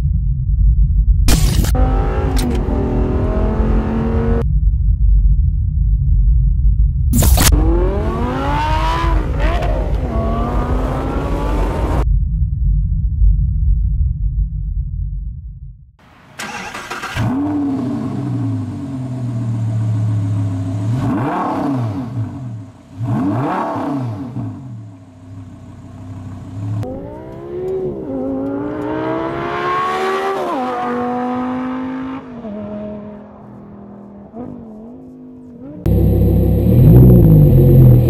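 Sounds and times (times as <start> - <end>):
car engine revving: 1.3 - 4.4, 7.2 - 12.0, 16.4 - 33.4, 34.0 - 38.0.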